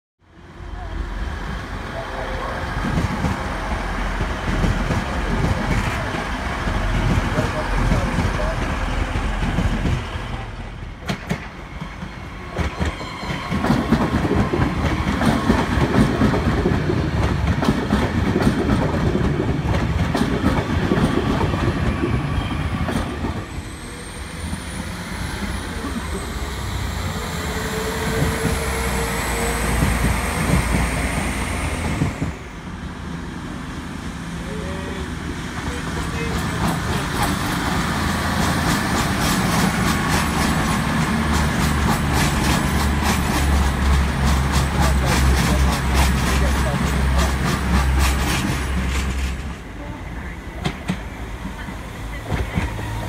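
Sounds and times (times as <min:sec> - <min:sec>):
high train whine: 0:00.2 - 0:53.0
train wheels clicking over rail joints: 0:11.0 - 0:22.2, 0:36.0 - 0:49.6.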